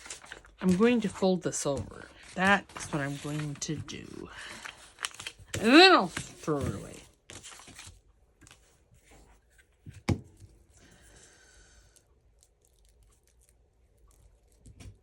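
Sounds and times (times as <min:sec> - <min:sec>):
paper tearing: 0:01.8 - 0:08.0.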